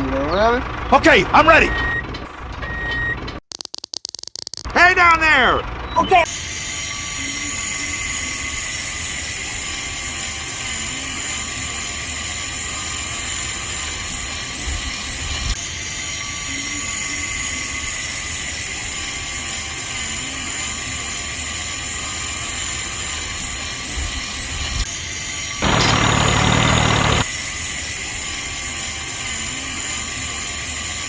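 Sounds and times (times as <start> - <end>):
high whine: 25.6 - 27.2
small motor whirring: 25.6 - 27.2.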